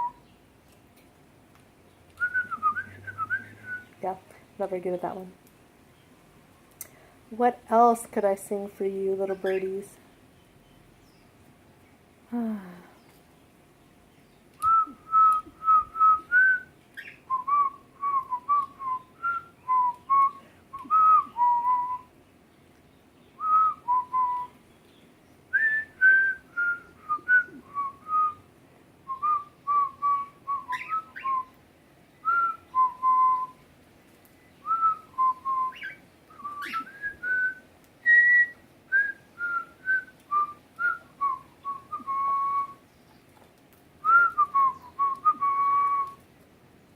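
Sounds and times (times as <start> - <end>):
person whistling a tune: 25.6 - 28.4, 36.3 - 42.8, 44.0 - 46.2.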